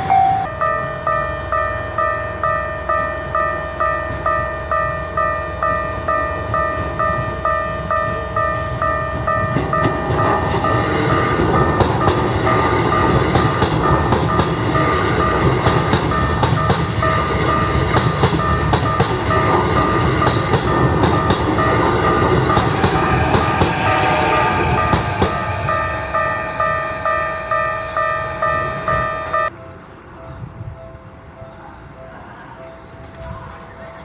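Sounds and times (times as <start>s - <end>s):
crossing warning bell ringing: 0.0s - 29.6s
train wheels clattering over rail joints: 8.8s - 25.4s.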